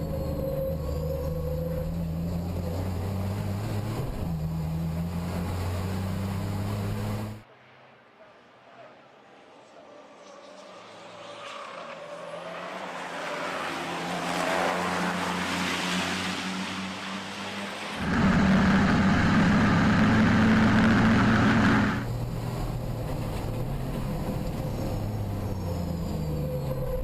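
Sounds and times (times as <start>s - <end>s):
racing truck engines droning: 0.0s - 7.4s, 8.2s - 27.0s.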